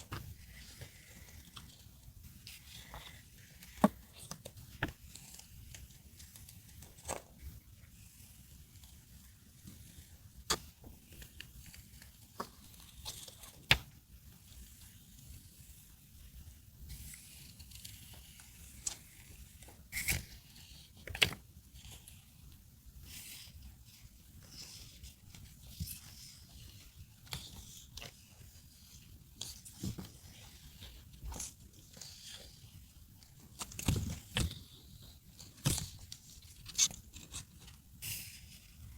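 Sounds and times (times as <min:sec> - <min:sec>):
paper rustling and crinkling: 0:23.1 - 0:38.9.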